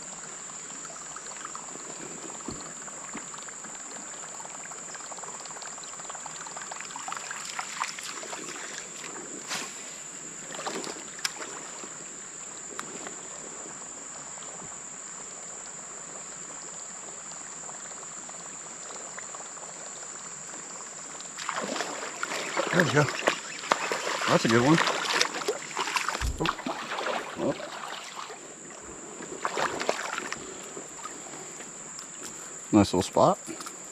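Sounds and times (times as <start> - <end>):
water lapping around a kayak: 0.0 - 15.3, 17.8 - 32.7
splashing and rustling: 7.0 - 11.9, 21.4 - 32.5
light knocks and splashes: 21.4 - 28.4, 29.4 - 31.2.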